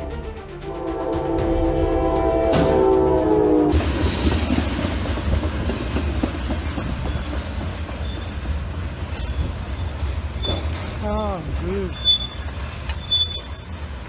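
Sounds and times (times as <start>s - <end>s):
train horn: 0.0s - 4.0s
train rumbling and rattling past: 0.0s - 14.0s.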